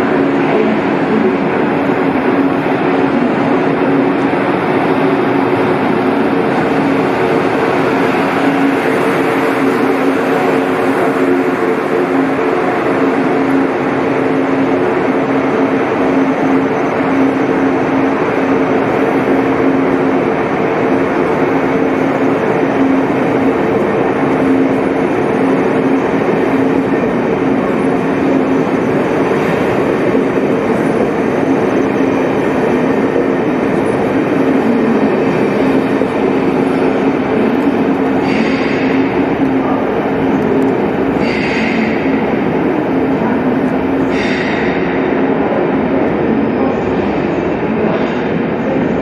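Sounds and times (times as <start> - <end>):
train wheels rumbling on rails: 0.0 - 49.0.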